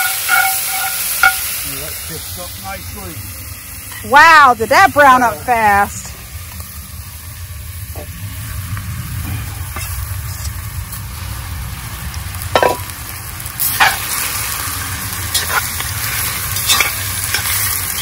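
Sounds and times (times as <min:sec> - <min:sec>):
chicken sizzling in hot oil: 0:00.0 - 0:18.0
metal clank on pot: 0:12.5 - 0:12.9, 0:13.7 - 0:14.0, 0:15.3 - 0:15.7, 0:16.6 - 0:18.0.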